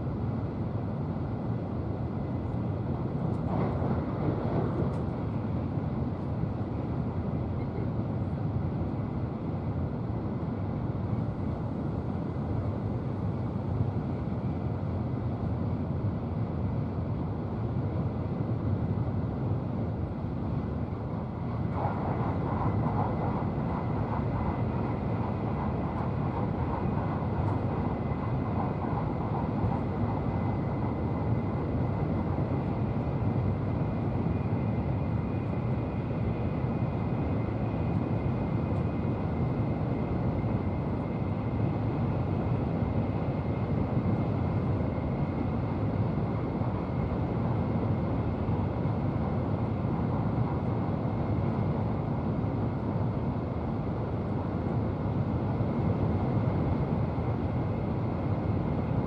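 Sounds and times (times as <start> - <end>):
train cabin running rumble: 1.5 - 7.8, 21.2 - 53.8.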